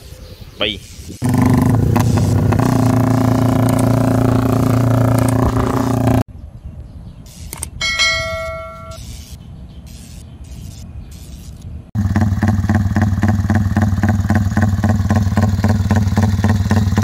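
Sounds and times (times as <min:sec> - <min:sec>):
motorcycle engine revving: 0:01.2 - 0:06.3, 0:12.0 - 0:17.0
bell-like ding: 0:07.8 - 0:09.0.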